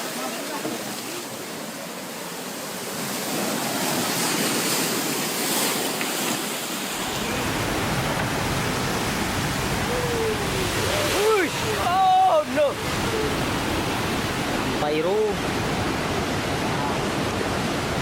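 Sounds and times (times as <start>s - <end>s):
storm waves crashing: 3.4s - 18.0s
deep rumble: 6.9s - 11.1s.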